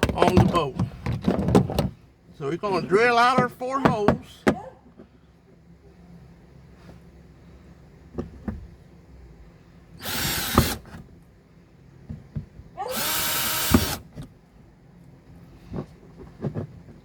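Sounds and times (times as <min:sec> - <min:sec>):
power drill whine: 0:10.0 - 0:10.8, 0:12.9 - 0:14.1.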